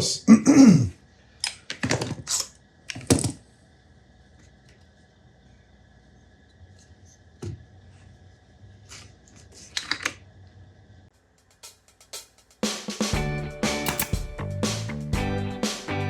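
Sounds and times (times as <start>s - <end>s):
small parts clicking and tapping: 13.8s - 14.2s.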